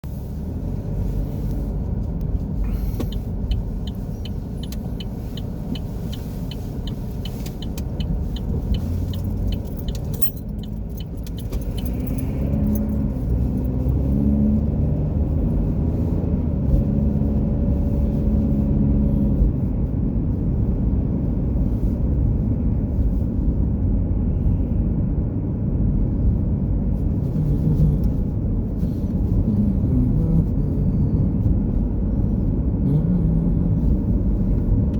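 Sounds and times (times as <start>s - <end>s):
car road and engine rumble: 0.0s - 34.9s
regular ticking: 2.9s - 13.0s.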